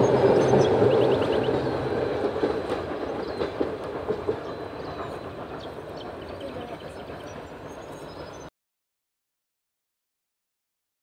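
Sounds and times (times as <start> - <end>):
train wheels rumbling on track: 0.0 - 8.5
wheels clacking over rail joints: 0.0 - 8.5.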